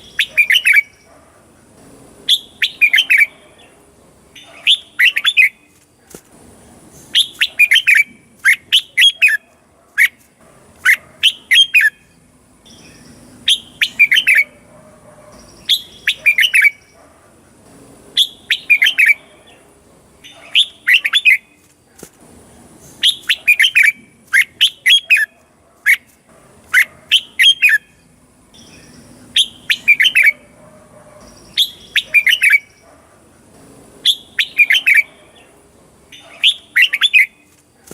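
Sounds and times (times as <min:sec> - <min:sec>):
bird singing whistled phrases: 0:00.0 - 0:01.1, 0:02.3 - 0:03.4, 0:07.1 - 0:09.4, 0:12.7 - 0:14.6, 0:15.5 - 0:16.9, 0:18.2 - 0:19.2, 0:23.0 - 0:25.3, 0:28.6 - 0:30.3, 0:31.4 - 0:32.8, 0:34.1 - 0:35.1, 0:36.1 - 0:37.4.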